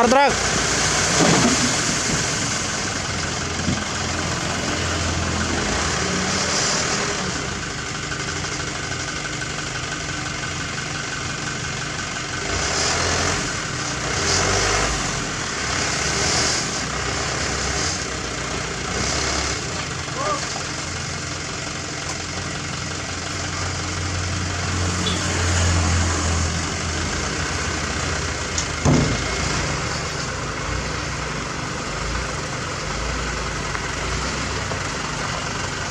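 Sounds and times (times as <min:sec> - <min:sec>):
heavy machinery diesel engines: 0:00.0 - 0:35.9.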